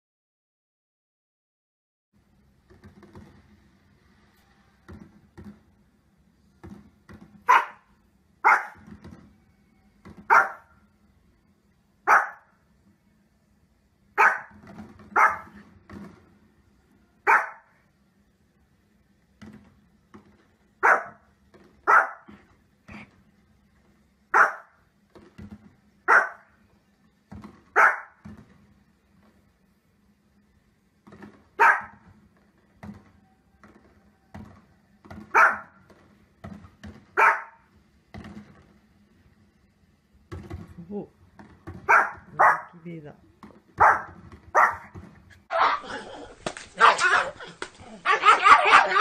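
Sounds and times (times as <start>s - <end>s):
small dog barking: 7.5s - 8.8s, 10.3s - 10.7s, 12.1s - 12.5s, 14.2s - 15.6s, 17.2s - 17.7s, 20.8s - 21.2s, 21.9s - 22.3s, 24.3s - 24.8s, 26.1s - 26.5s, 27.8s - 28.2s, 31.6s - 32.0s, 35.3s - 35.7s, 37.2s - 37.6s, 41.9s - 42.8s, 43.8s - 44.9s, 45.5s - 46.2s, 46.8s - 49.0s.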